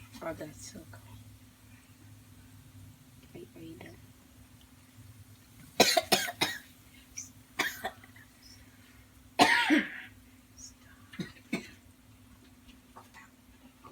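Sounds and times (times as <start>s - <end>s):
person coughing: 5.8s - 6.6s, 9.4s - 10.1s.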